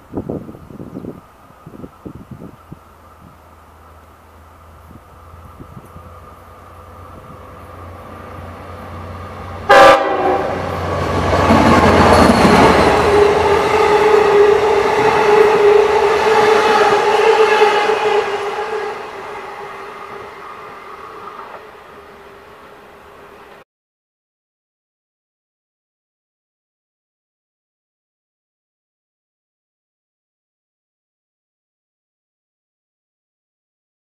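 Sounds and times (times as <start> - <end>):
train rumbling past: 0.0 - 23.6
train horn blast: 8.7 - 11.0, 12.1 - 22.4.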